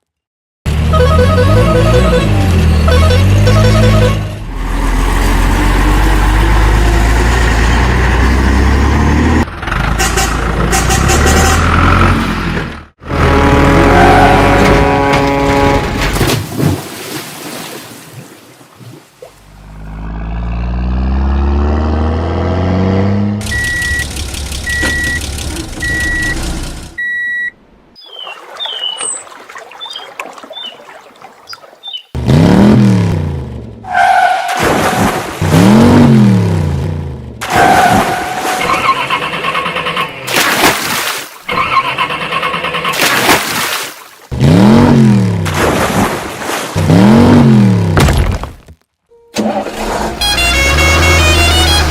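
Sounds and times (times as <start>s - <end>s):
engine rising in pitch: 0.7s - 9.9s, 19.5s - 26.9s, 49.3s - 51.9s
engine revving: 0.7s - 16.1s, 19.4s - 27.0s, 32.2s - 40.3s, 44.3s - 45.6s, 46.8s - 48.0s, 49.4s - 51.9s
truck engine running: 23.1s - 27.0s
reversing beeps: 23.5s - 24.1s, 24.7s - 25.2s, 25.8s - 26.4s, 27.0s - 27.6s.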